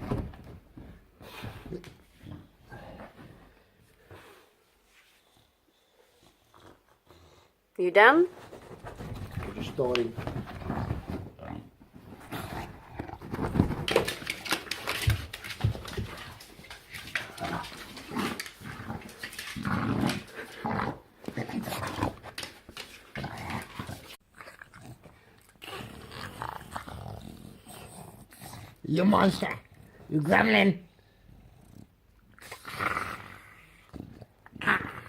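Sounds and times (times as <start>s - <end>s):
dog grunting and growling: 22.9s - 30.0s, 31.4s - 35.0s.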